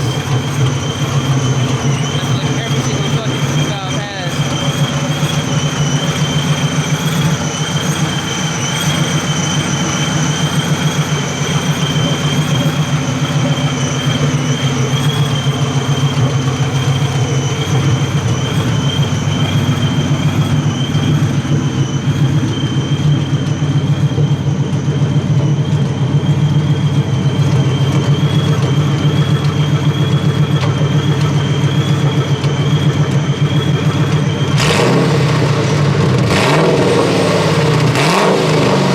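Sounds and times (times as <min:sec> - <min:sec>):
loud engine idling rumble: 0:00.0 - 0:38.9
supercharger whine: 0:00.0 - 0:38.9.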